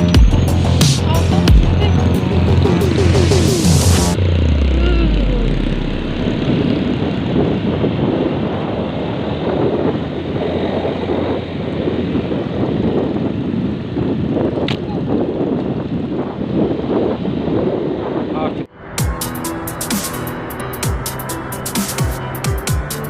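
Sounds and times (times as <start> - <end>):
low tone sliding down: 0.0 - 8.0, 18.7 - 23.0
motorcycle engine running: 0.0 - 18.3, 19.0 - 23.0
wind buffeting microphone: 0.3 - 18.7.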